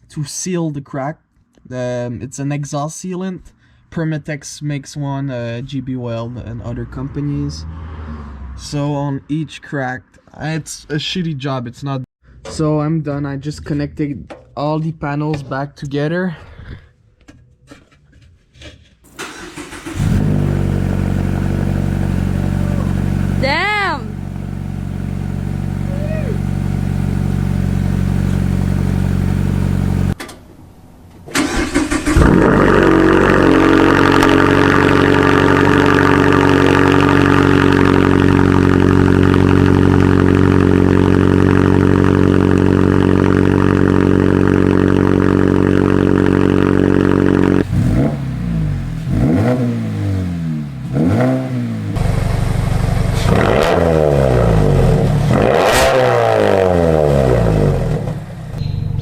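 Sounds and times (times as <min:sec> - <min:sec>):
car engine idling and revving: 0:06.4 - 0:08.9, 0:19.1 - 0:30.2, 0:31.4 - 0:59.0.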